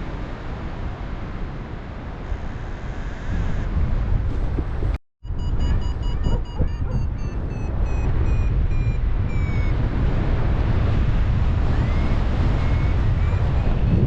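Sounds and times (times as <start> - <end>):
heavy wind on microphone: 0.0 - 14.0
variometer short beeps: 5.2 - 9.8
rising electronic chirps: 5.3 - 9.7.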